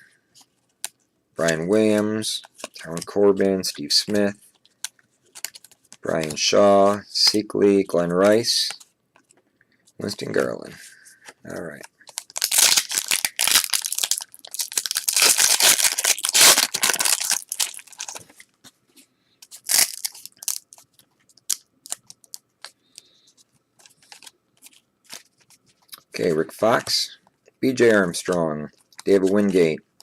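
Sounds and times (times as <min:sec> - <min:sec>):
cards rustling and clicking: 0:00.3 - 0:07.4, 0:08.1 - 0:18.8, 0:19.4 - 0:26.0, 0:27.9 - 0:29.8
wrapper tearing and crinkling: 0:12.0 - 0:18.3, 0:19.5 - 0:22.4.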